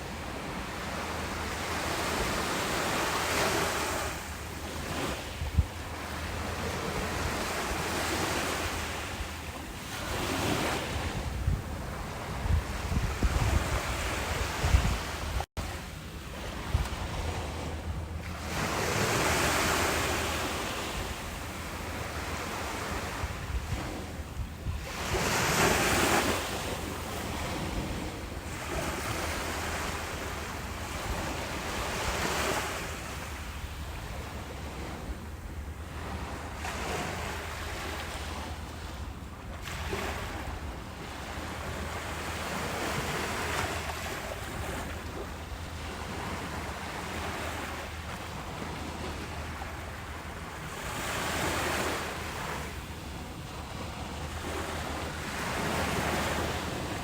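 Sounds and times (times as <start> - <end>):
surf hiss: 0.0 - 34.6
ocean waves breaking on beach: 0.0 - 57.0
wind rumble on microphone: 0.0 - 57.0.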